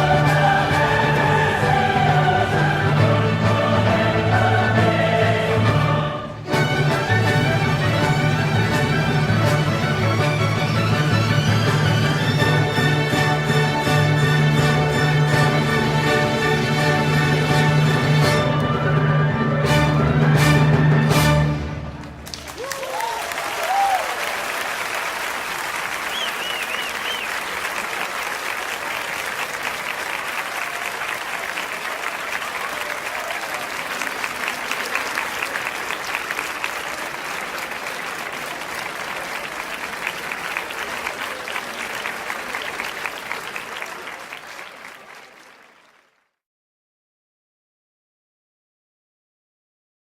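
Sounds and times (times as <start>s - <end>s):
crowd cheering: 22.0s - 46.3s
crowd applauding: 22.0s - 46.4s.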